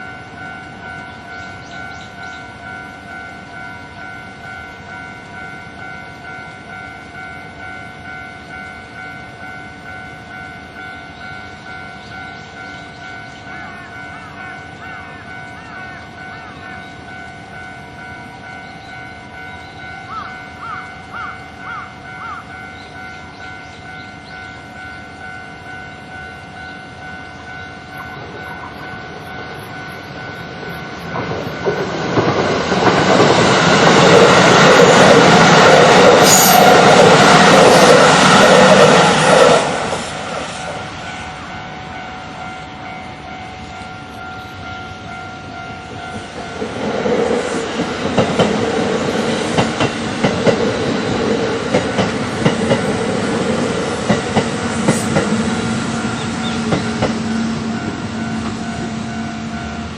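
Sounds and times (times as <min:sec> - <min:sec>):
electric trains passing: 0:00.0 - 0:59.9
level crossing alarm bell: 0:00.0 - 0:59.9
wheels clattering over rail joints: 0:28.8 - 0:40.8.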